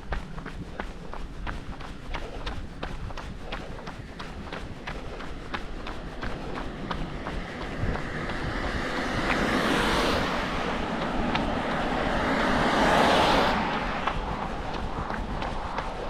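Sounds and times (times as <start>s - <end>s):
faint footsteps: 0.0s - 16.0s
car tyres on wet road: 4.8s - 16.0s.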